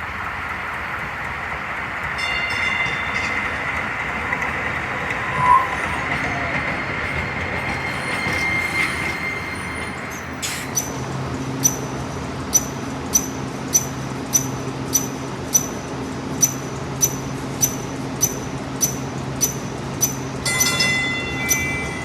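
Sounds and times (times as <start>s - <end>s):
passenger train running on rails: 0.0s - 22.0s
thin wheel squeal: 4.2s - 11.0s.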